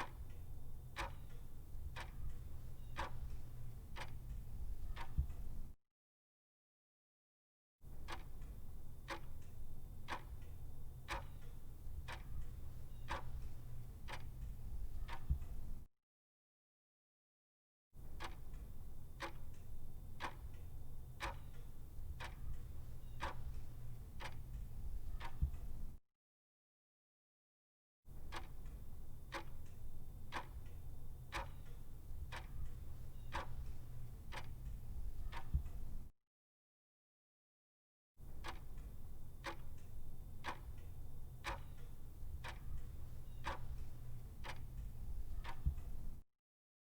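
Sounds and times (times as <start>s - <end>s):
clock-like ticking: 0.0s - 5.6s, 8.0s - 15.8s, 18.2s - 26.0s, 28.3s - 36.1s, 38.4s - 46.2s
steady low hum: 0.0s - 5.7s, 8.5s - 15.8s, 18.6s - 26.0s, 28.6s - 36.1s, 38.7s - 46.2s.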